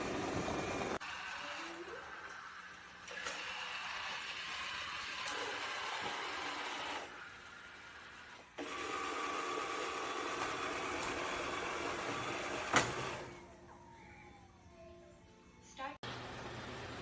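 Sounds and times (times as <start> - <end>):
robot vacuum whirring: 3.1 - 13.4.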